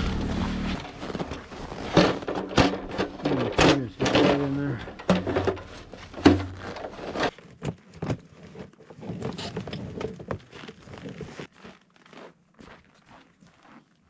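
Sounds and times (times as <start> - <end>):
knocks and clicks: 0.0 - 7.3
rustling handling noise: 0.0 - 11.8.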